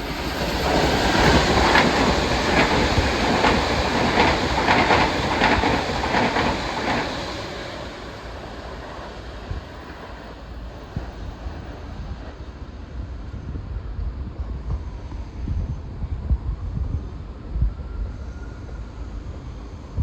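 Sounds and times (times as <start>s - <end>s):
train wheels clacking on rails: 0.0s - 12.7s.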